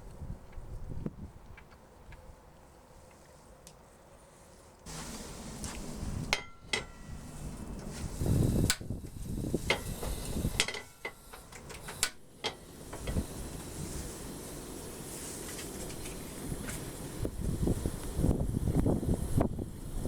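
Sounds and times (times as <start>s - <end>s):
steady sizzle: 4.9s - 20.0s.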